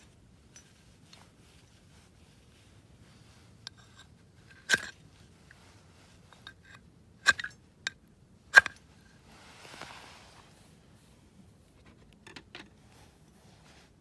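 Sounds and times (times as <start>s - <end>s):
soft scrape or rustle: 0.0s - 6.6s, 8.9s - 12.1s, 12.7s - 14.0s.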